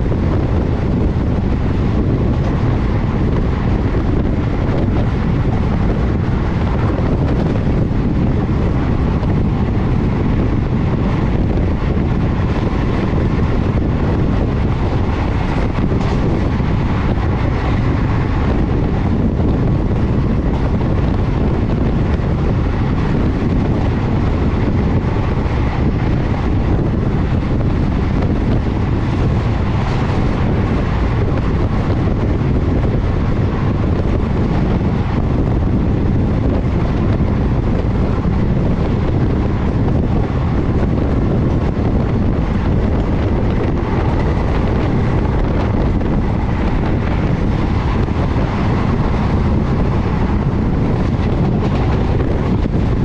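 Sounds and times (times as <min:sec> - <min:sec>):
train rumbling at speed: 0:00.0 - 0:53.0
wind buffeting microphone: 0:00.0 - 0:53.0.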